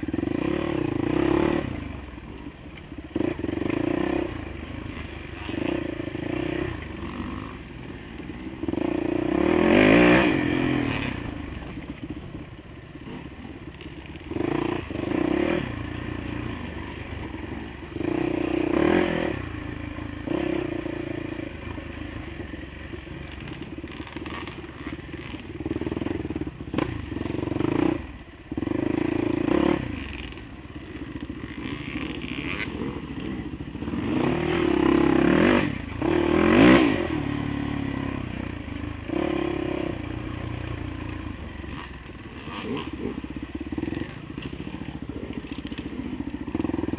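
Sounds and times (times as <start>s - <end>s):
dirt bike engine revving: 0.0s - 2.3s, 3.0s - 12.2s, 13.0s - 46.9s.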